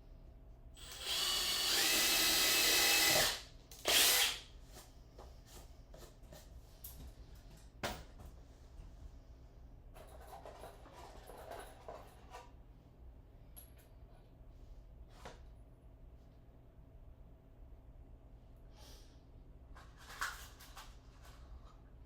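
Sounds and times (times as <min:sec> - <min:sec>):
power tool running: 0:00.8 - 0:04.4.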